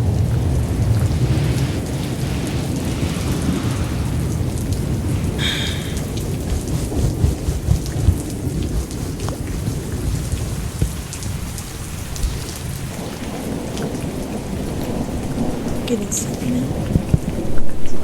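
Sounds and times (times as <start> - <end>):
low rumble of thunder: 0.0 - 18.0
steady rain: 0.0 - 18.0
raindrops ticking: 4.3 - 18.0.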